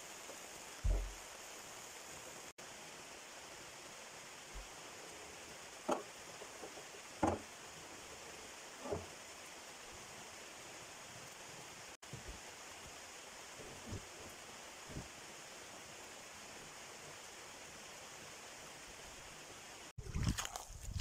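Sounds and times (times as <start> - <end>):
steady rain hiss: 0.0 - 21.0
soft knocks: 0.8 - 1.2, 6.6 - 7.4.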